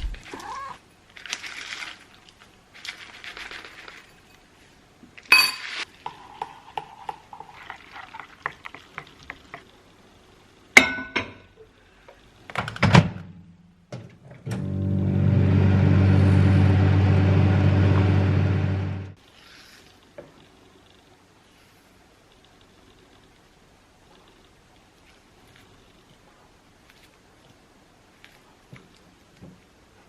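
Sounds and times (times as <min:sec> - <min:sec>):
dishes and glassware clinking: 0:05.3 - 0:07.5
soft hissing pours: 0:05.8 - 0:10.7.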